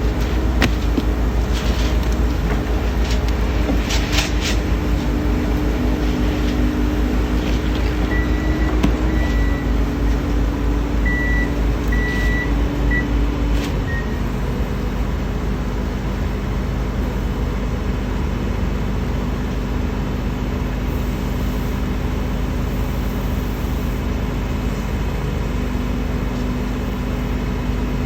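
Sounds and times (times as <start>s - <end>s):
heavy machinery engine rumbling: 0.0s - 28.0s
short high warning beeps: 8.1s - 9.8s.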